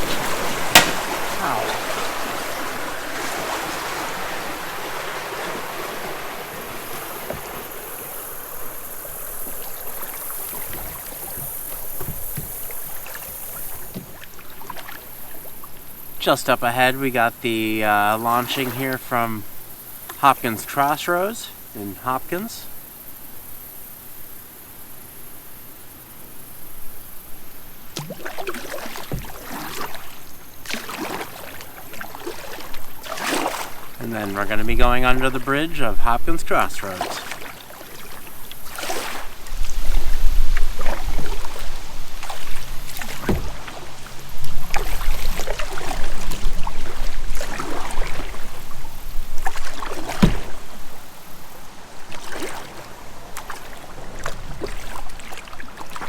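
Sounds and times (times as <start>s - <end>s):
creek water rushing: 0.0s - 22.8s, 27.2s - 56.0s
paddle splashes and drips: 0.0s - 23.7s, 24.4s - 56.0s
low knock: 0.7s - 1.7s.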